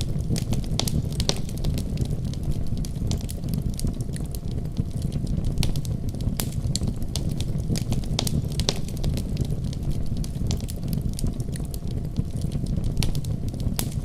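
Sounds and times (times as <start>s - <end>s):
deep rumble of storm wind: 0.0s - 14.0s
wood fire crackling and popping: 0.0s - 14.0s.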